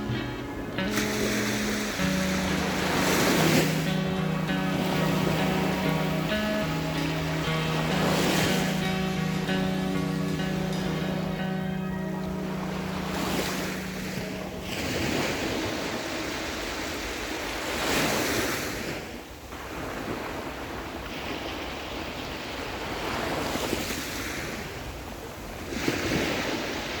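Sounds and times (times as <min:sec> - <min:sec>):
waves breaking on pebble shore: 0:00.7 - 0:11.6, 0:12.3 - 0:27.0.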